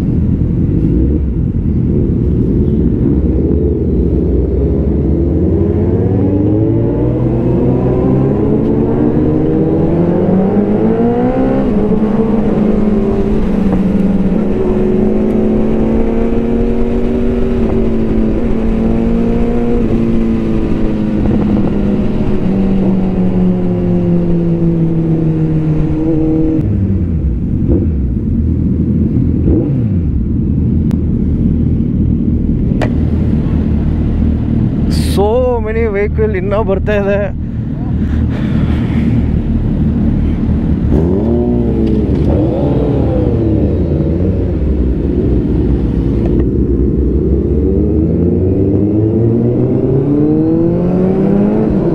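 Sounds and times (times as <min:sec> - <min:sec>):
motorcycle engine revving: 0:00.0 - 0:35.2, 0:37.3 - 0:51.9.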